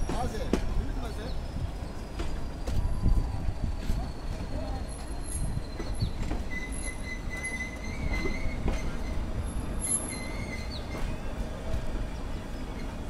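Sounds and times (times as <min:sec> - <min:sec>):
train carriages rumbling: 0:00.0 - 0:13.0
high wheel squeal: 0:01.4 - 0:11.4.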